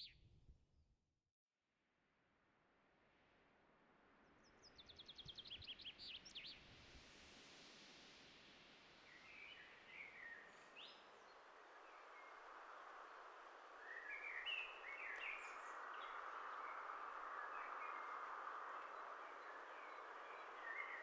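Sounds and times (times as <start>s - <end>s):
faint small bird chirps: 0.0s - 0.3s
steady outdoor hiss: 6.1s - 21.0s.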